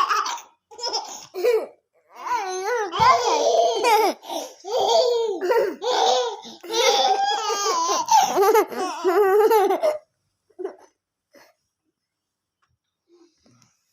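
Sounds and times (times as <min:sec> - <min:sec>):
baby laughing: 0:00.0 - 0:10.0.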